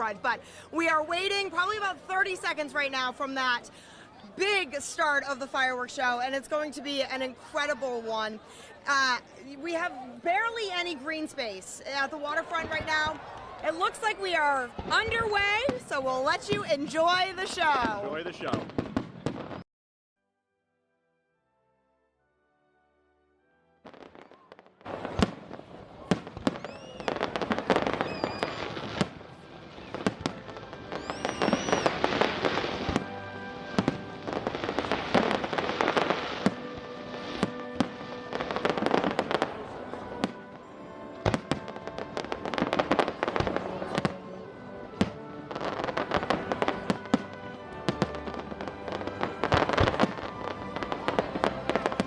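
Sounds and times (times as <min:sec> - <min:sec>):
fireworks bangs and crackling: 0:11.9 - 0:19.6, 0:23.9 - 0:52.0
music: 0:20.2 - 0:52.0
firework whistles: 0:26.4 - 0:29.1, 0:30.9 - 0:33.0.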